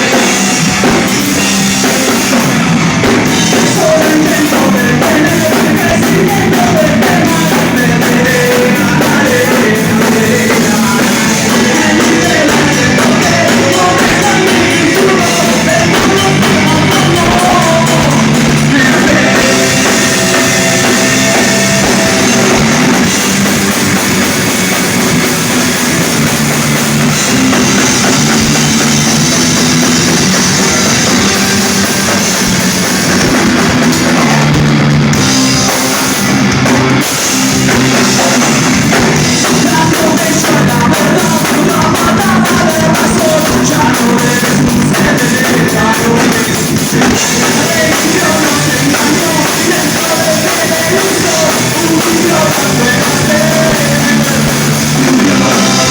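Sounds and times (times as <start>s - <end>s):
drum kit beat: 0.0s - 55.9s
rock band playing live: 0.0s - 55.9s.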